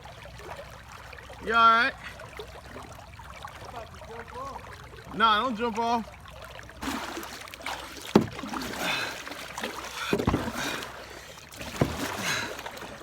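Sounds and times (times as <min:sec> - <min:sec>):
paddle splashing water: 0:00.0 - 0:13.0
sharp knocks: 0:08.1 - 0:08.4.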